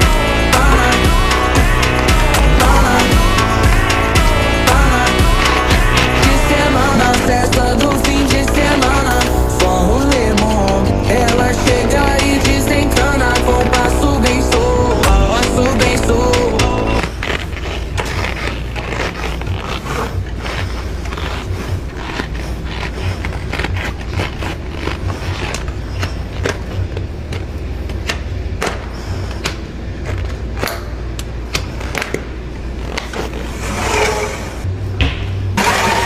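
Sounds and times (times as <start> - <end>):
song playing: 0.0 - 17.0.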